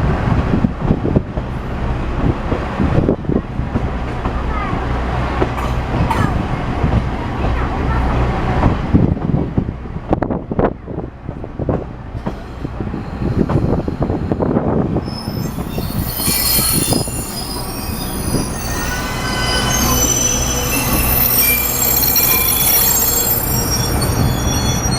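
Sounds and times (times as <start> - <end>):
train rumbling: 0.0 - 24.9
train wheels squealing on rail: 12.2 - 24.9.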